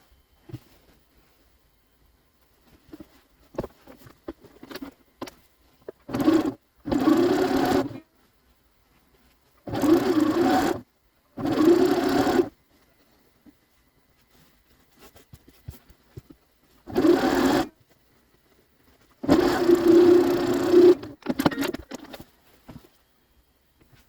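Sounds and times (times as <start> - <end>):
sewing machine stitching: 6.0 - 8.0, 9.7 - 10.8, 11.4 - 12.5, 16.9 - 17.8, 19.2 - 22.2.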